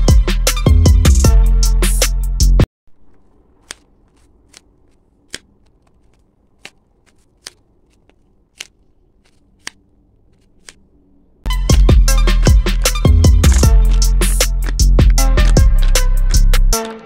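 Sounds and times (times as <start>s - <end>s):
sharp clicks of craft materials: 2.9s - 10.8s.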